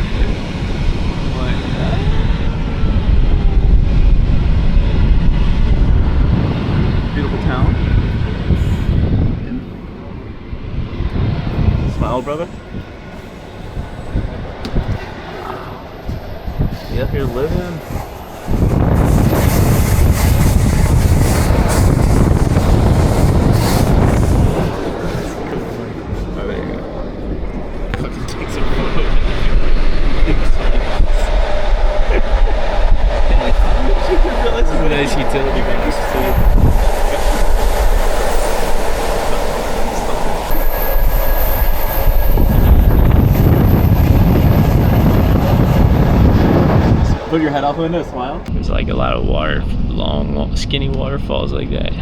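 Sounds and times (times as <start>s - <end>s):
moving train rumble: 0.0s - 52.0s
wind buffeting microphone: 0.0s - 52.0s
faint thin squeal: 35.0s - 43.8s.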